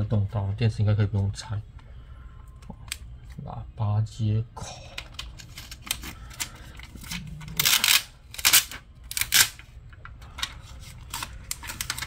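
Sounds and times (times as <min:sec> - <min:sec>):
small clicks and scrapes: 0:05.0 - 0:12.0.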